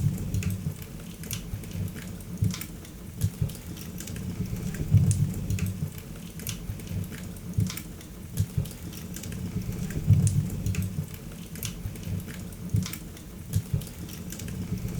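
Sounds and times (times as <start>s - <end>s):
low rumble of flames: 0.0s - 0.8s, 4.2s - 6.0s, 9.3s - 11.2s
wood fire crackling and popping: 0.0s - 14.7s.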